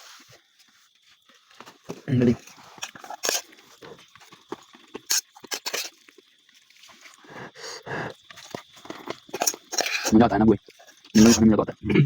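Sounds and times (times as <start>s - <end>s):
chewing: 0.6s - 11.5s
utensils clicking against metal dishes: 9.4s - 10.1s.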